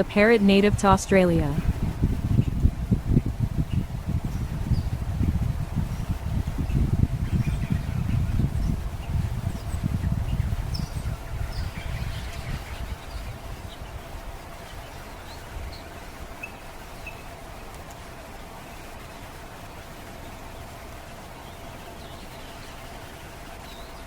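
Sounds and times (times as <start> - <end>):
wind rumble on microphone: 0.0 - 18.4
faint steady hum: 0.0 - 24.0.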